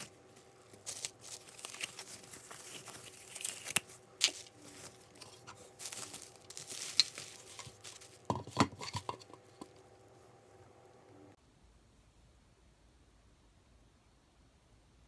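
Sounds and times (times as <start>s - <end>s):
packaging crinkling and tearing: 0.0s - 9.8s.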